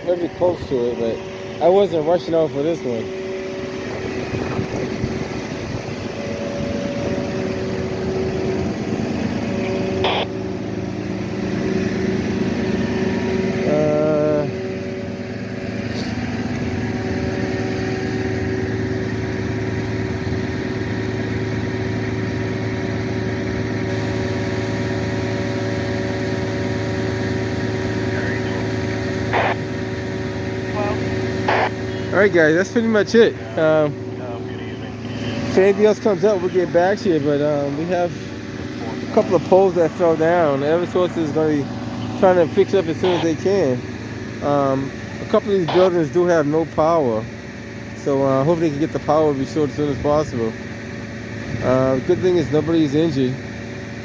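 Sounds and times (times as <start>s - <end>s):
vehicle engine idling: 0.0s - 54.0s
short warbling tone: 17.0s - 23.2s.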